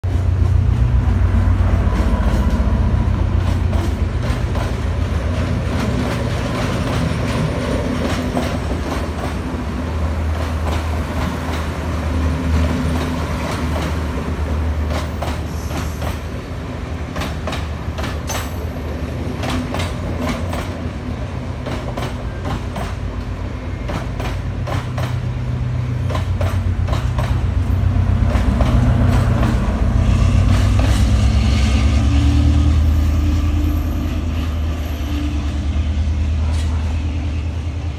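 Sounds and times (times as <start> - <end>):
train wheels clacking over rail joints: 1.8 - 9.6, 10.2 - 31.5.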